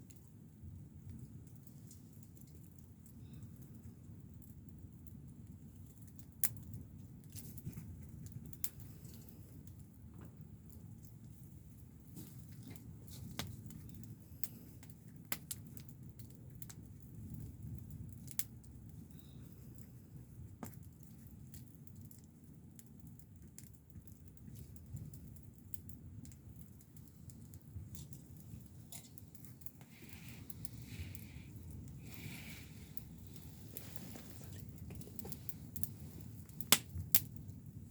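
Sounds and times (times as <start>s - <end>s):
wood fire crackling: 0.0s - 37.9s
low steady rumble: 23.8s - 37.9s.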